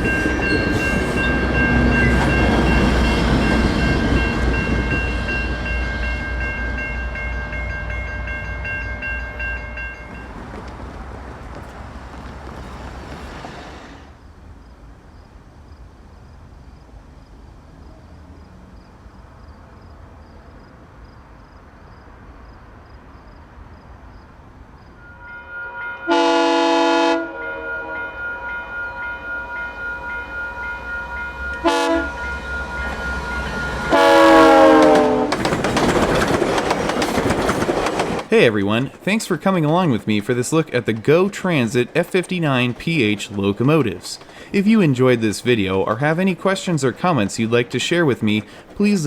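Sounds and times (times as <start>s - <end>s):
train bell ringing: 0.0s - 10.6s, 25.0s - 35.2s
train rumble: 0.0s - 49.0s
train air horn blasts: 25.0s - 35.4s.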